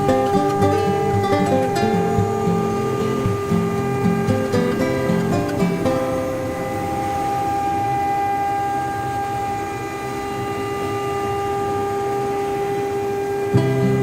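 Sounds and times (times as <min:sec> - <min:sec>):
router spindle whining: 0:00.0 - 0:13.5.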